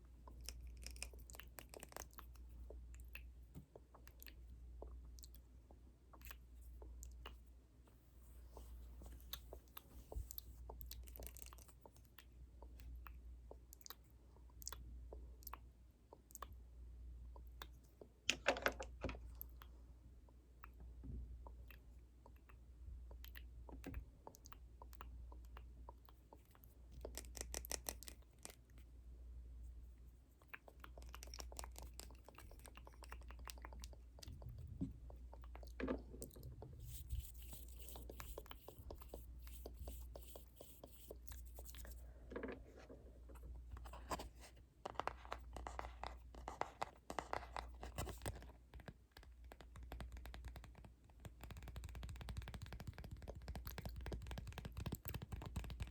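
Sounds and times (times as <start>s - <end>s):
faint low hum: 0.0s - 55.9s
scratchy rustling strokes: 36.5s - 42.8s.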